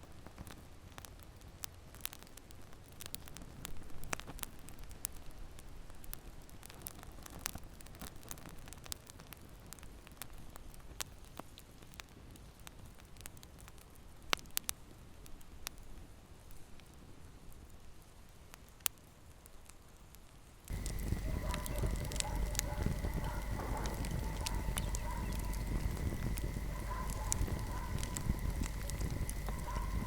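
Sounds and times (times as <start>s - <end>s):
fire pops and snaps: 0.2s - 14.8s, 20.7s - 30.0s
low rumble of flame: 20.7s - 30.0s.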